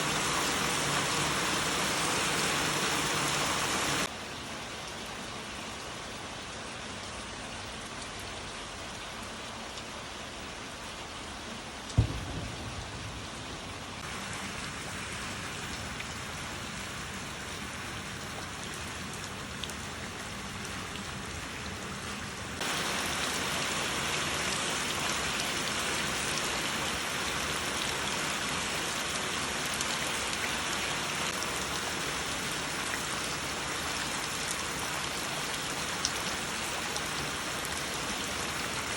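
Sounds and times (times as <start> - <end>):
steady rain: 0.0 - 38.9
low thump: 12.0 - 13.9.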